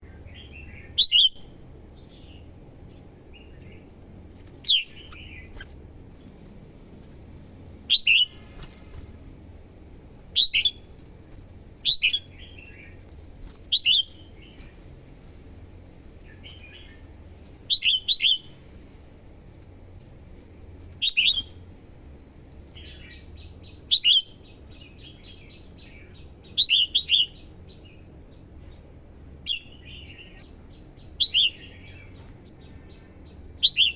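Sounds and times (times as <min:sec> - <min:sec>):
bird singing whistled phrases: 0:00.4 - 0:01.4, 0:07.9 - 0:08.4, 0:23.9 - 0:24.4, 0:31.2 - 0:32.0.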